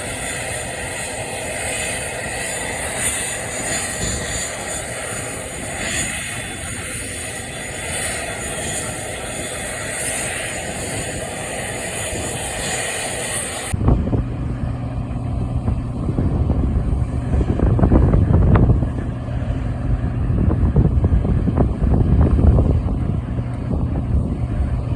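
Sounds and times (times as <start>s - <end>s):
aircraft engine whine: 0.0s - 24.9s
low steady drone: 0.0s - 24.9s
wind buffeting microphone: 0.0s - 24.9s.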